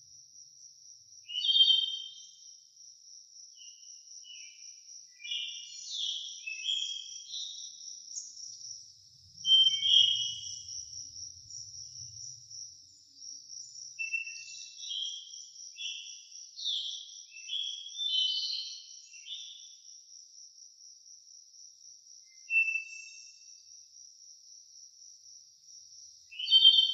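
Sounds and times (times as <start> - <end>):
high-pitched pulsing insect trill: 9.4 - 16.5.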